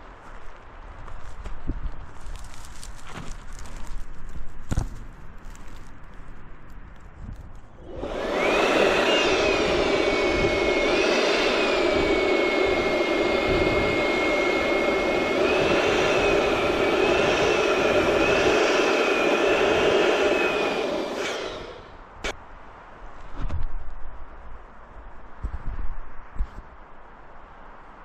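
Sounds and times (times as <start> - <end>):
balloon inflator whining: 7.8 - 22.0.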